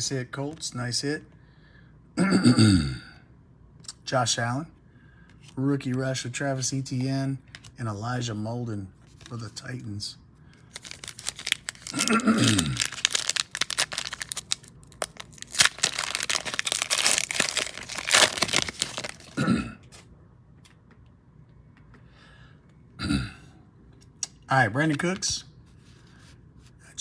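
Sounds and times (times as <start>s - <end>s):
plastic wrappers tearing and crinkling: 10.6s - 19.4s.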